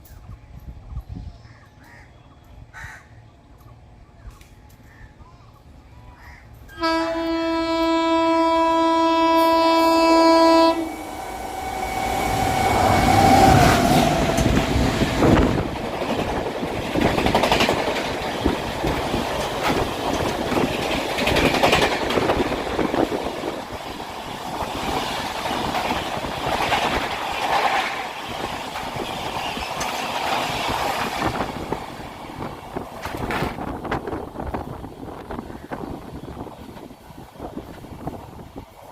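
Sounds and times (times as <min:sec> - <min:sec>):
train passing with loud rumble: 0:05.5 - 0:38.9
train horn blast: 0:06.7 - 0:14.0
wheels clacking over rail joints: 0:11.6 - 0:38.0.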